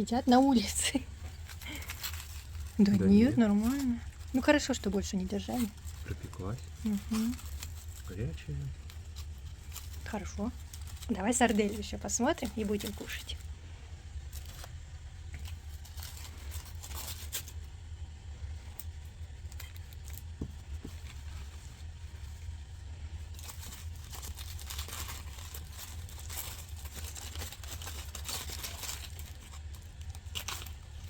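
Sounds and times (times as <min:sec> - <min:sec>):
steady low hum: 0:00.0 - 0:31.0
wrapping crinkling and rustling: 0:00.0 - 0:31.0.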